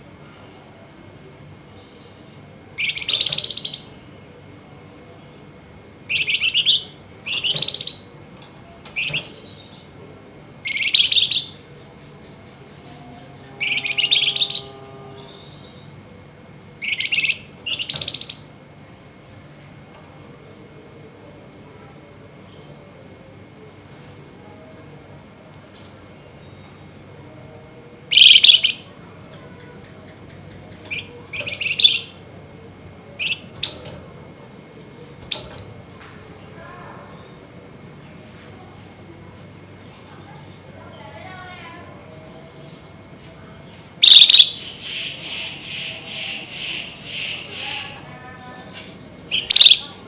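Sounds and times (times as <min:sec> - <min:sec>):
faint steady hum: 0:00.0 - 0:50.0
songbird harsh chattering call: 0:02.8 - 0:03.9, 0:06.1 - 0:08.1, 0:10.6 - 0:11.6, 0:13.6 - 0:15.9, 0:16.8 - 0:18.6, 0:28.1 - 0:28.9, 0:29.7 - 0:32.2, 0:35.3 - 0:35.7, 0:44.0 - 0:48.1, 0:48.7 - 0:50.0.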